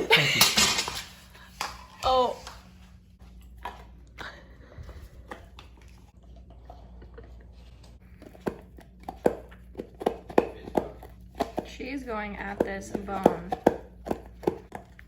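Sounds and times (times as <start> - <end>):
puppy chewing a bone: 2.9 - 15.0.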